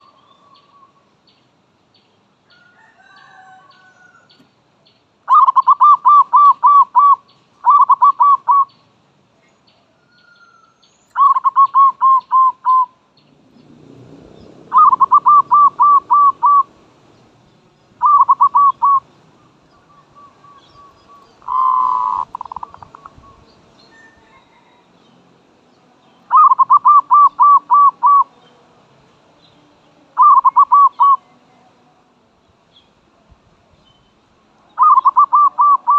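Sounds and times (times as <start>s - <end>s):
small birds chirping: 3.7s - 35.9s
dove cooing: 5.3s - 8.7s, 11.2s - 13.0s, 14.7s - 16.8s, 18.0s - 24.8s, 26.3s - 28.4s, 30.1s - 31.2s, 34.8s - 35.9s.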